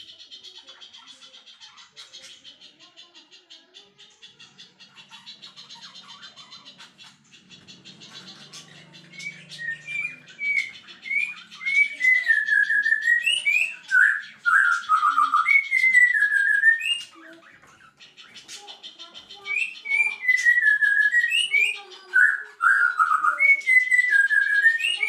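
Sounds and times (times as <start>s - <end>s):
fast high ticking chatter: 0.0s - 25.0s
songbird singing whistled notes: 7.3s - 18.7s, 19.3s - 25.0s.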